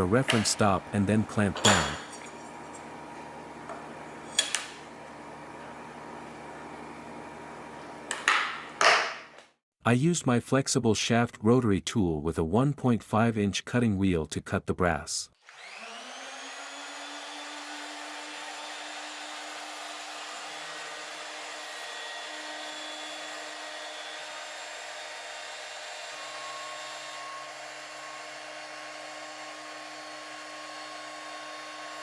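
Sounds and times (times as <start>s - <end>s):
rotary tool cutting metal: 15.4s - 32.0s.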